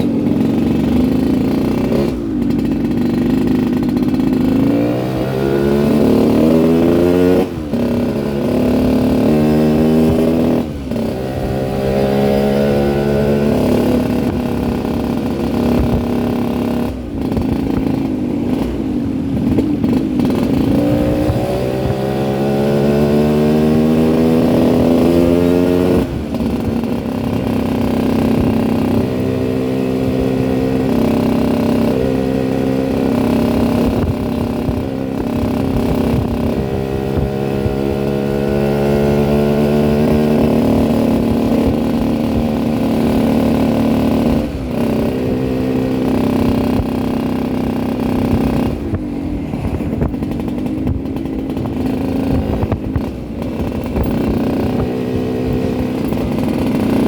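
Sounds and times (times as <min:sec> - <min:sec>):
motorcycle engine shifting gears: 0:00.0 - 0:57.0.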